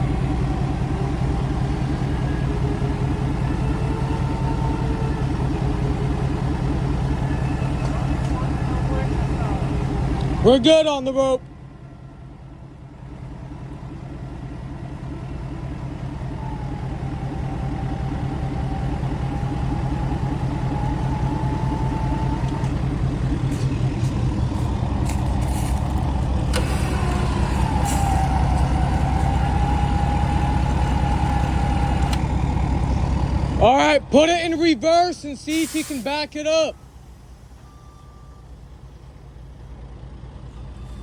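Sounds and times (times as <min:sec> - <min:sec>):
dump truck engine running: 0:00.0 - 0:41.0
clicks: 0:31.2 - 0:32.3.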